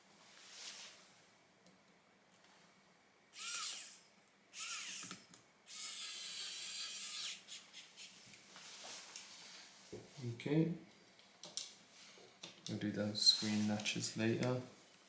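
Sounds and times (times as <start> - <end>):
electric screwdriver driving screws: 3.4 - 4.0, 4.6 - 7.4.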